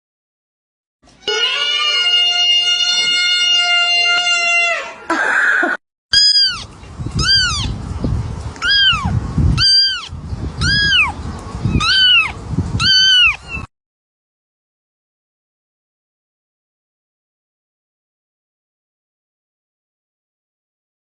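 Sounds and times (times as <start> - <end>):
cat meowing: 1.2 - 5.0, 6.2 - 7.8, 8.6 - 13.7.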